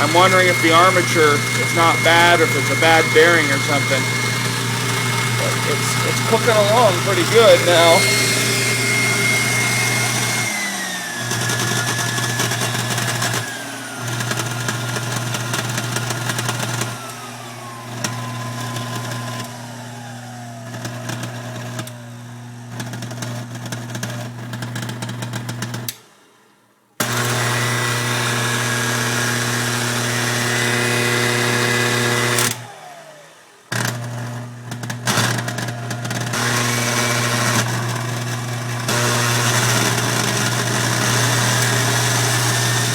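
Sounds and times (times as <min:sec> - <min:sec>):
high motor whine: 0:00.0 - 0:12.5
stand mixer motor grinding hum: 0:00.0 - 0:25.8, 0:27.0 - 0:42.9.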